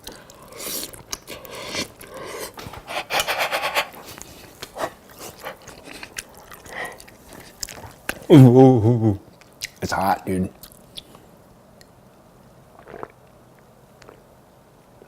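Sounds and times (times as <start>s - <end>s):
utensil scraping in a dish: 2.7s - 5.4s.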